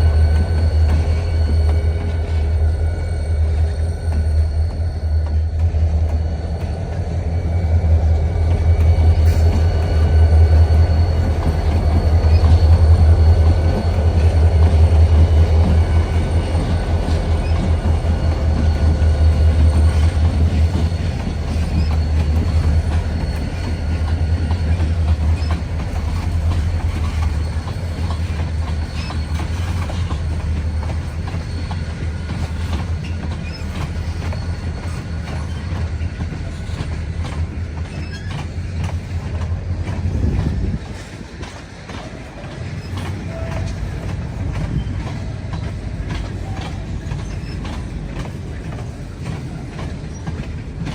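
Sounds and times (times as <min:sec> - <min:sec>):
train cars rumbling past: 0:00.0 - 0:50.9
wheels clicking over rail joints: 0:15.6 - 0:50.9
faint wheel squeal: 0:16.1 - 0:38.9, 0:42.0 - 0:50.5.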